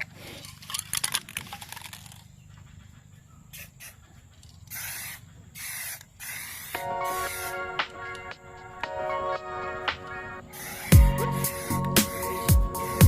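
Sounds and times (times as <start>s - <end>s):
spray can rattling clicks: 4.7s - 7.4s
short spray bursts: 4.7s - 7.6s
music: 6.8s - 13.0s.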